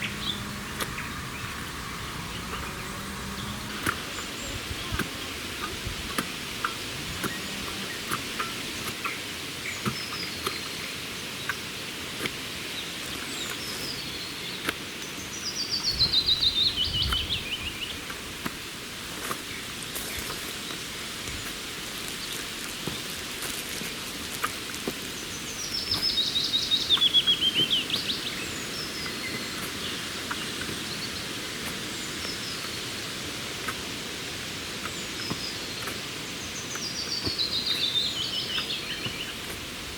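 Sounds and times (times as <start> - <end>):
songbird singing: 0.0 - 39.9
faint chirps and ticks: 11.4 - 11.6.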